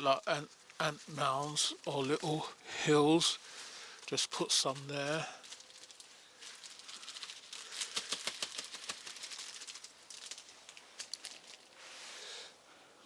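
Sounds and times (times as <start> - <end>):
powder container shaken tapping: 7.7 - 9.9.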